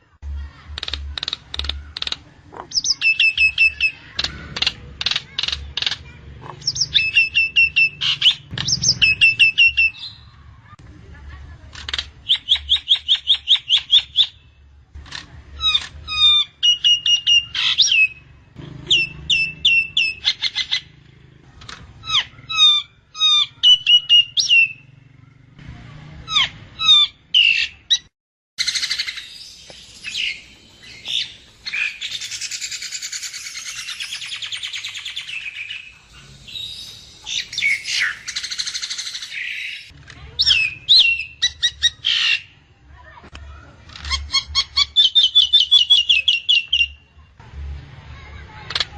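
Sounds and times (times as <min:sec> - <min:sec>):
bird chattering song: 0:00.6 - 0:10.4, 0:11.9 - 0:14.5, 0:15.6 - 0:21.1, 0:22.0 - 0:25.0, 0:26.3 - 0:42.6, 0:44.0 - 0:47.1
bird sharp whistled calls: 0:06.7 - 0:10.3, 0:28.6 - 0:42.5, 0:44.2 - 0:47.0.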